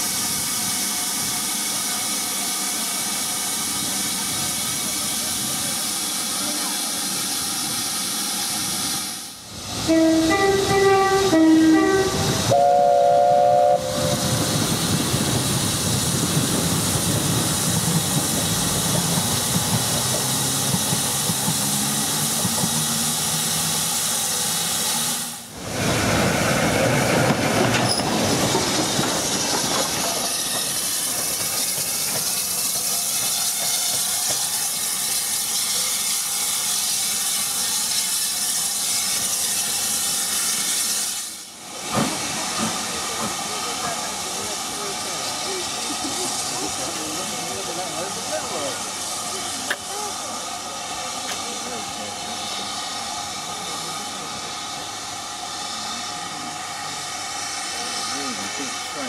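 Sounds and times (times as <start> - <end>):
diesel train passing: 0.0 - 59.0
steam locomotive hissing: 0.0 - 59.0
two-tone train horn: 9.9 - 14.2.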